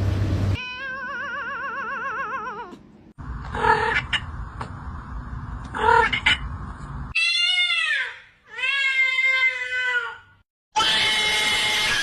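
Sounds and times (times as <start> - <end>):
cat meowing: 0.6 - 2.8.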